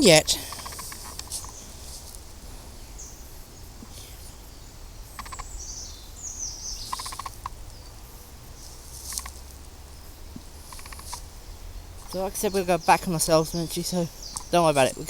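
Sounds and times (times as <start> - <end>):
wild birds calling: 0.0 - 15.0
rapid clicking bursts: 0.4 - 1.6, 5.1 - 5.6, 6.8 - 7.6, 9.0 - 9.4, 10.6 - 11.2.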